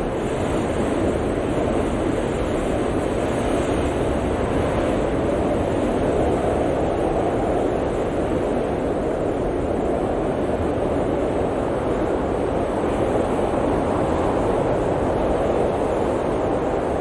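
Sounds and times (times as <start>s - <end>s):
blizzard wind blowing: 0.0s - 17.0s.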